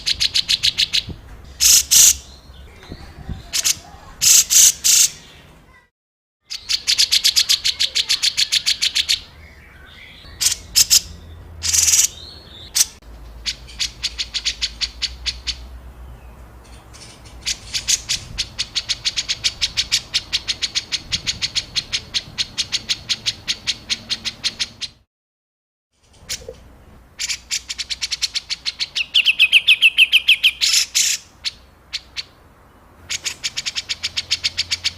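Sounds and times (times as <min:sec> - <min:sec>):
songbird rapid clicking calls: 0:00.0 - 0:02.3, 0:03.6 - 0:05.2, 0:10.2 - 0:15.7, 0:27.2 - 0:32.4, 0:33.1 - 0:34.9.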